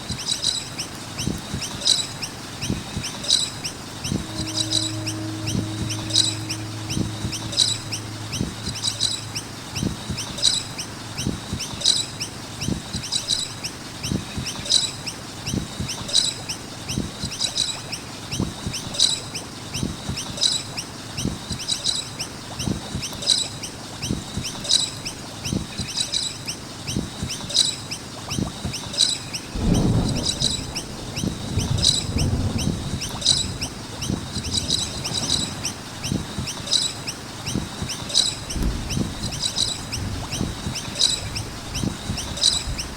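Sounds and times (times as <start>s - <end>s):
birds chirping: 0.1s - 42.9s
low rumble: 2.5s - 12.6s, 29.4s - 42.9s
low knocks: 2.9s - 11.6s, 29.5s - 36.6s, 37.5s - 42.9s.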